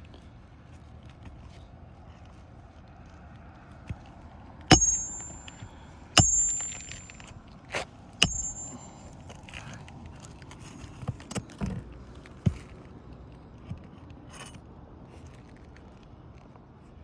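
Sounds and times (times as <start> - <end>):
hammer striking nails: 4.7 - 5.6, 6.2 - 7.2, 8.2 - 8.9.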